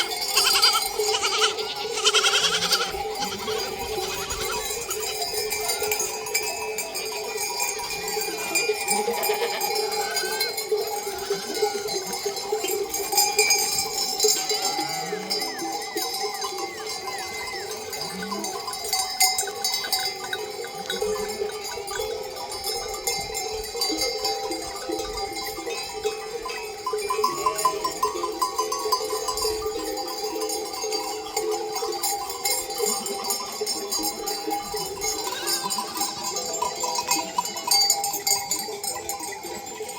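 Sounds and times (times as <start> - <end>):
sheep bleating: 0.0 - 6.0, 8.8 - 10.6, 14.3 - 15.5, 35.2 - 36.3
sheep bells clanking: 0.0 - 39.9.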